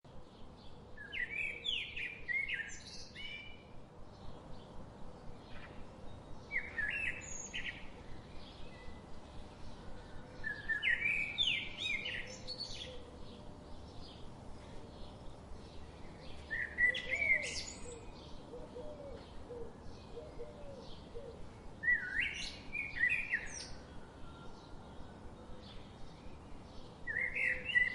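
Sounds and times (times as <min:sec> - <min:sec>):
small birds chirping: 0:00.1 - 0:27.9.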